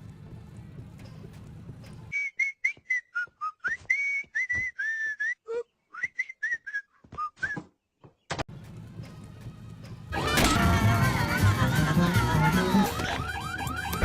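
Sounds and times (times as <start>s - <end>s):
person whistling a tune: 2.1s - 7.7s.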